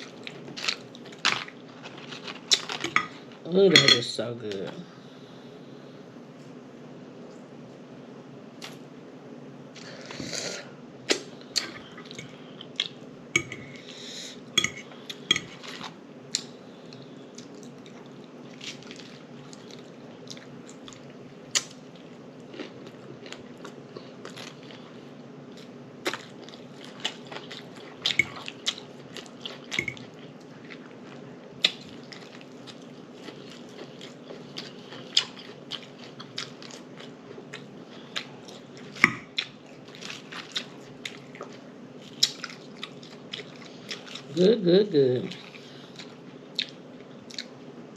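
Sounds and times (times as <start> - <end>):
food crunching: 0.0 - 3.7, 14.8 - 44.4
steady low hum: 0.0 - 47.9
chewing and lip smacking: 26.0 - 44.3, 45.3 - 47.6.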